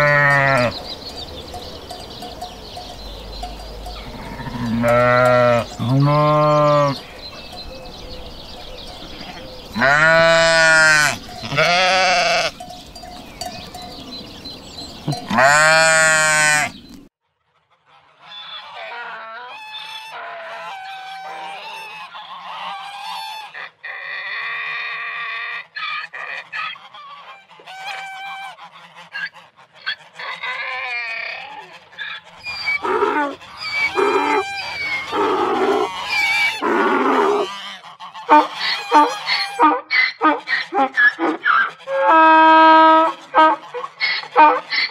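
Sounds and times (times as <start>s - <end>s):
sheep bleating: 0.0s - 0.8s, 4.0s - 7.1s, 9.2s - 12.6s, 15.1s - 16.8s
waterfowl honking: 17.8s - 24.3s, 25.8s - 44.9s.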